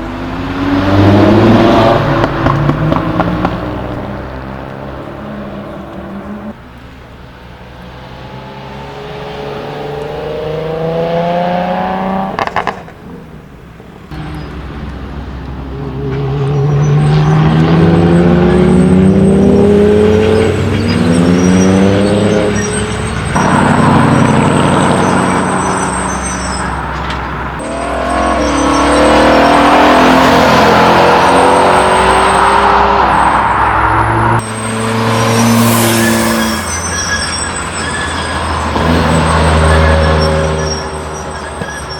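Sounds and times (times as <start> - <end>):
cars accelerating loudly: 0.0 - 6.6, 7.7 - 12.7, 14.1 - 41.9.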